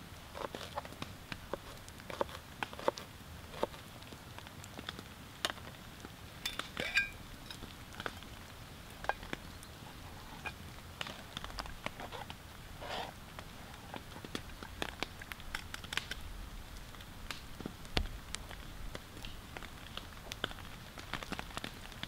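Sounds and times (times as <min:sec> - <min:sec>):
rain on tent fabric: 0:00.0 - 0:22.0
mug clinking down: 0:06.5 - 0:07.2.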